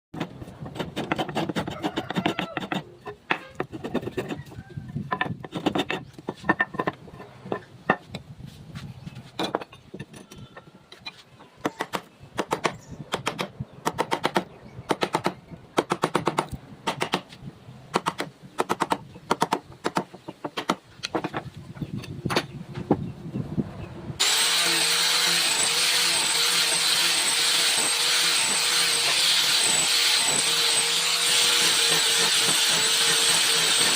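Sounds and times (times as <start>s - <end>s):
tools knocking and tapping wood: 2.1s - 8.2s, 9.3s - 23.0s
woodworking power tool whining: 24.2s - 33.9s.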